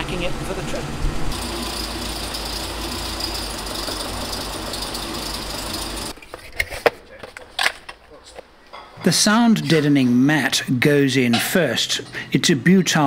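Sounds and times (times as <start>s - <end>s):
car engine idling: 1.3s - 6.1s.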